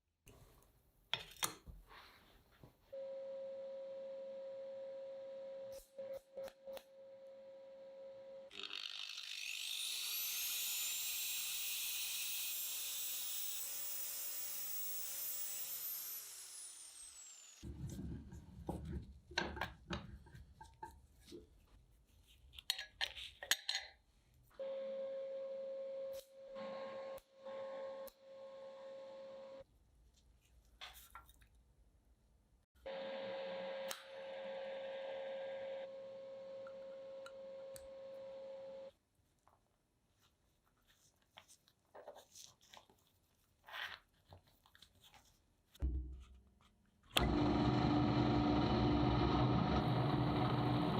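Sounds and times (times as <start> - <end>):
small motor whining: 8.5 - 17.7, 47.2 - 50.9.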